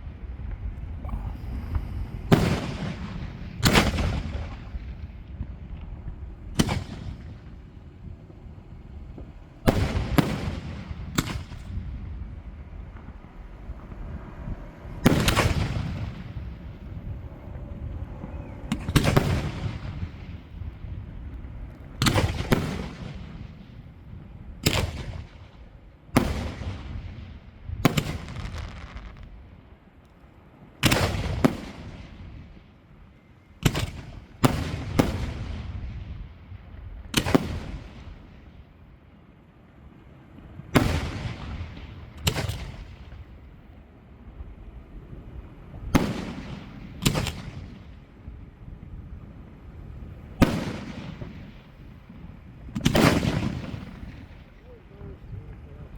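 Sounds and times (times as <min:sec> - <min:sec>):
fireworks shells bursting: 0:28.0 - 0:29.4.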